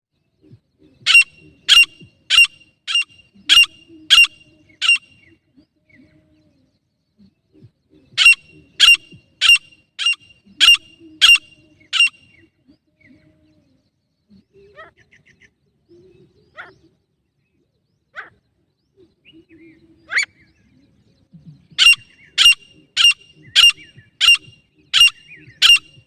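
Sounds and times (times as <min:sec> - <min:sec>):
francolin harsh calls: 0:01.1 - 0:05.2, 0:08.2 - 0:12.3, 0:21.8 - 0:26.0.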